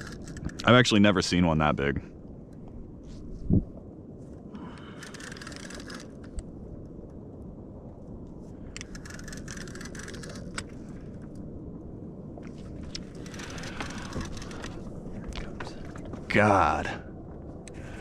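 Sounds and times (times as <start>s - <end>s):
fishing gear rattling and scraping: 0.0s - 0.8s, 4.8s - 6.4s, 8.8s - 11.2s, 12.5s - 16.4s
wind and water rumble: 0.0s - 18.0s.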